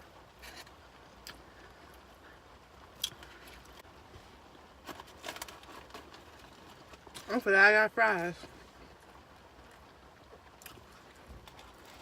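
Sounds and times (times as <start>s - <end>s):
faint chewing: 9.7s - 12.0s.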